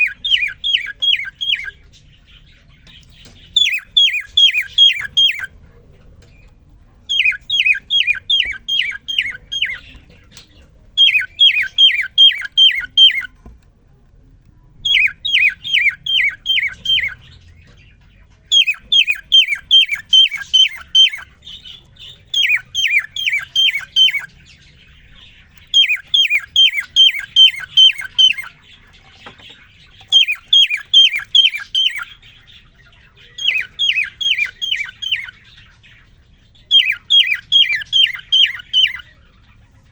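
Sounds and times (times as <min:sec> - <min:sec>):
cockatiel singing: 0:00.0 - 0:05.6, 0:06.2 - 0:13.5, 0:14.8 - 0:39.9.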